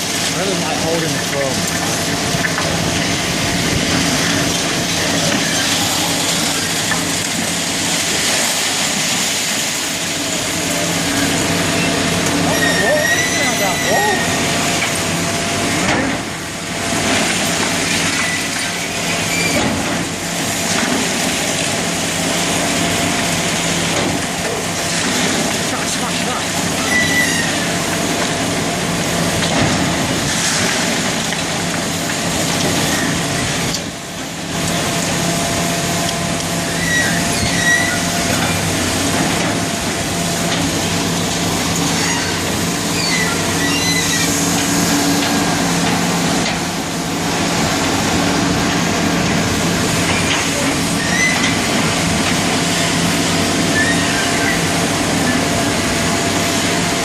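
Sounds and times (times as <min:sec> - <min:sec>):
heavy diesel machinery running: 0:00.0 - 0:57.0
short high-pitched squeaks: 0:12.5 - 0:14.2, 0:26.8 - 0:27.6, 0:36.7 - 0:38.1, 0:42.0 - 0:44.4.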